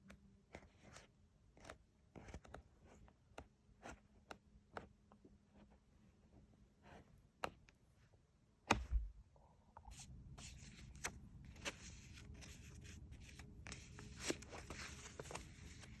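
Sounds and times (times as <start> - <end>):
book thump: 8.7 - 9.2
paper rustling and scraping: 10.4 - 16.0.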